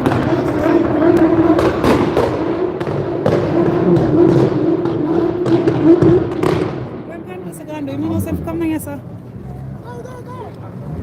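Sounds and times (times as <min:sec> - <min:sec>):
car engine at high revs: 0:00.0 - 0:07.1, 0:10.5 - 0:11.0
exhaust pops and bangs: 0:00.0 - 0:07.3.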